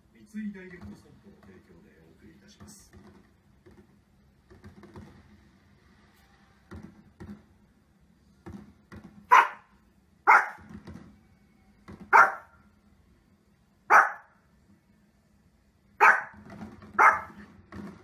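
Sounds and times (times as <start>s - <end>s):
dog barking: 9.3s - 10.7s, 12.1s - 12.6s, 13.9s - 14.4s, 16.0s - 16.4s, 17.0s - 17.5s.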